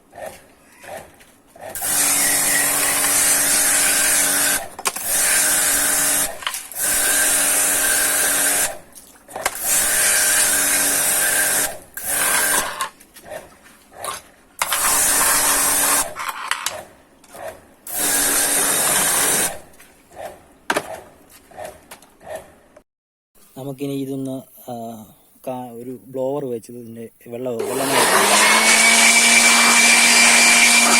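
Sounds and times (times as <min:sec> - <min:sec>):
power tool hissing and whining: 0:01.8 - 0:08.8, 0:09.6 - 0:12.9, 0:14.6 - 0:16.2, 0:17.9 - 0:19.6, 0:27.6 - 0:30.9.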